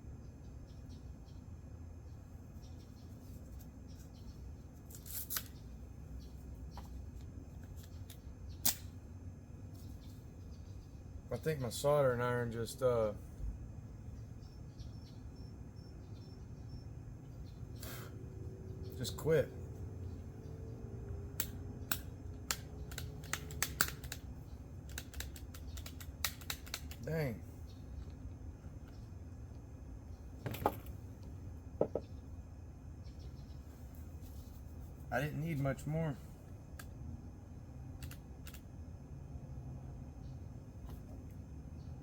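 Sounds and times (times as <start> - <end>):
low steady hum: 0.0 - 42.0
sharp irregular clicks: 21.4 - 27.1, 38.0 - 38.6.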